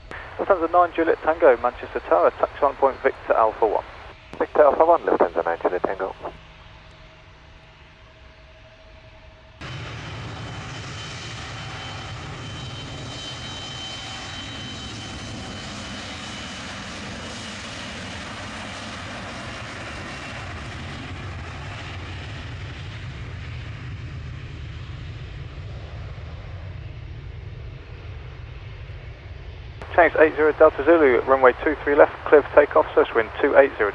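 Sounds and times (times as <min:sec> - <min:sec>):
faint high whine: 0:00.0 - 0:06.4, 0:29.8 - 0:33.9
jet engines rushing: 0:00.0 - 0:06.4, 0:09.6 - 0:33.9.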